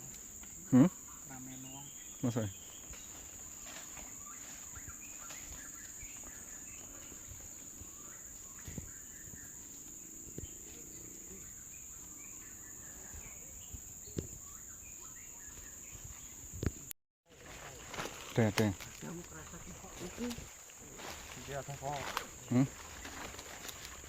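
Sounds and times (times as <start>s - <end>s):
insects droning: 0.0s - 24.0s
bird chirps: 0.5s - 16.9s.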